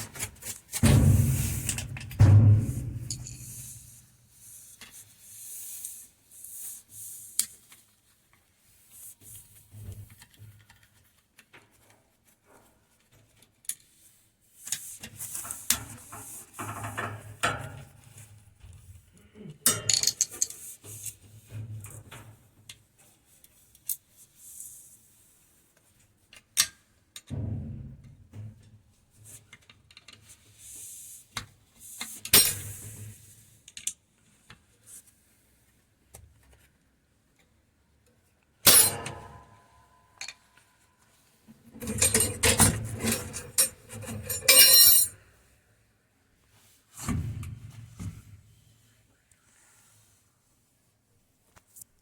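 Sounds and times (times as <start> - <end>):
metal tools clinking and scraping: 0.8 - 3.9, 41.8 - 45.1.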